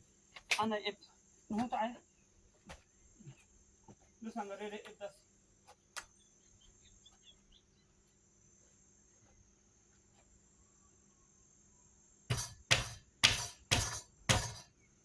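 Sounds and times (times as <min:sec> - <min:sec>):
sharp knocks: 0:12.3 - 0:14.7.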